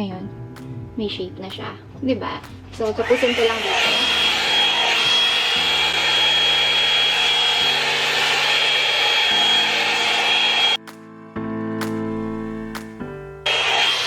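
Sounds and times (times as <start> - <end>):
hot-air brush dryer running: 3.1 - 10.8.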